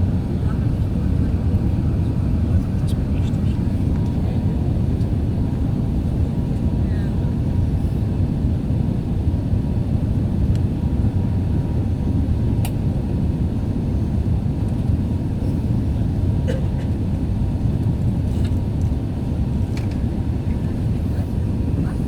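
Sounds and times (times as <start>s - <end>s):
airliner cabin rumble: 0.0s - 22.0s.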